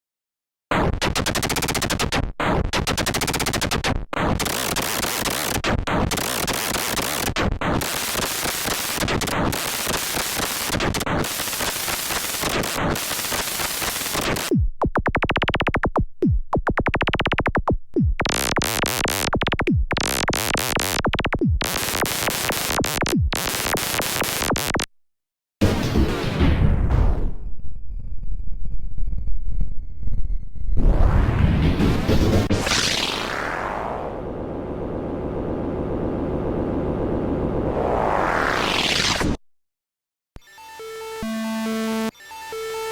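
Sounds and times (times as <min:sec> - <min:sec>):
synthesized swooping sweeps: 0:36.5 - 0:39.4
harsh synthesized buzzing tones: 0:40.5 - 0:42.9.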